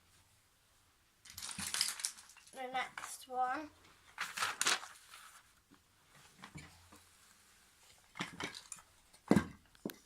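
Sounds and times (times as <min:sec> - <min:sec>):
toy train track pieces clacking: 0:01.3 - 0:03.2.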